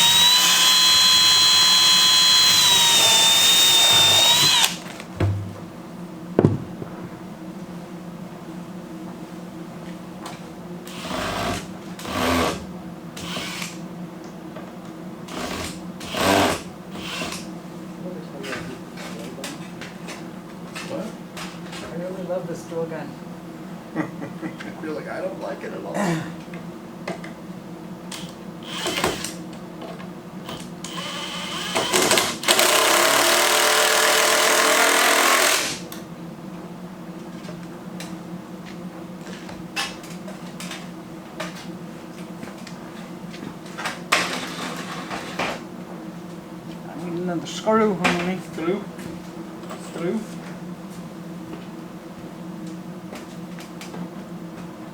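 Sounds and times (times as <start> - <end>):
drill gun driving screws: 0.0 - 5.0, 10.9 - 12.6, 13.2 - 13.8, 15.3 - 17.4, 28.2 - 29.4, 30.5 - 35.8
steady low hum: 0.0 - 31.8.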